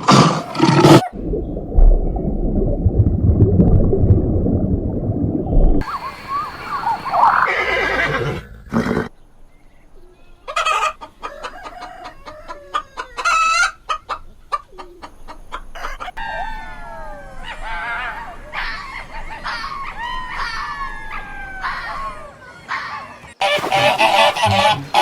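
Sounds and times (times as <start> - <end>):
chickens clucking: 5.8 - 7.6, 10.0 - 25.0
rooster crowing: 10.6 - 13.7, 15.8 - 23.0.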